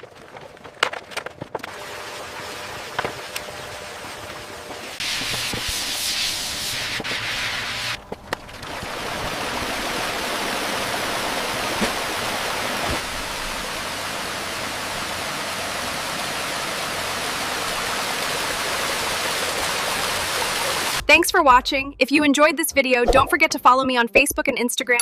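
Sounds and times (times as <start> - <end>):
rushing water: 8.4 - 21.0.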